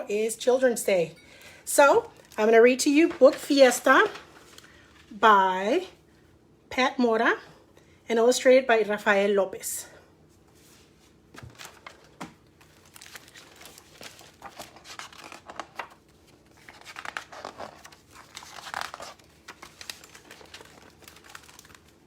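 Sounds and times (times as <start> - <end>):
paper rustling and crinkling: 2.1 - 5.2, 10.5 - 22.0
book pages turning: 10.5 - 22.0.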